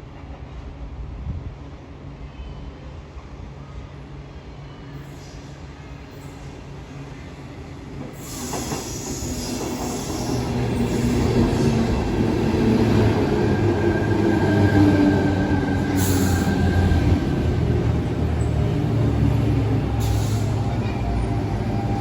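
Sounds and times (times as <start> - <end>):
electric train rumbling: 0.0 - 22.0
train brakes squealing: 4.5 - 6.8, 8.1 - 12.1, 13.2 - 22.0.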